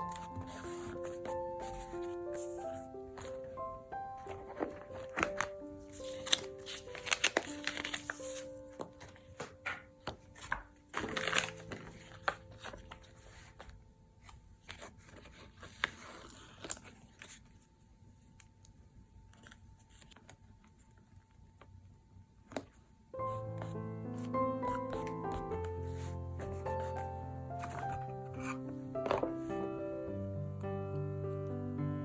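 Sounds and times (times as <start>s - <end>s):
paper crinkling and rustling: 4.2s - 17.8s, 19.3s - 21.6s, 24.7s - 29.4s
background music: 23.2s - 32.0s.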